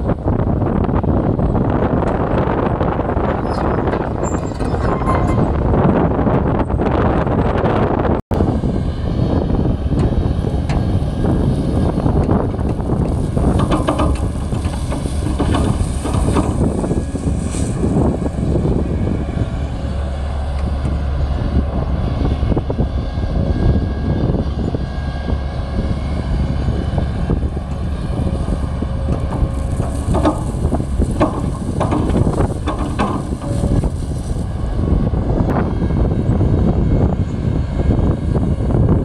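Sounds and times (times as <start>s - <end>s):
diesel engines running: 0.0s - 39.0s
metallic knocks and clanks: 13.4s - 17.4s, 28.8s - 34.4s.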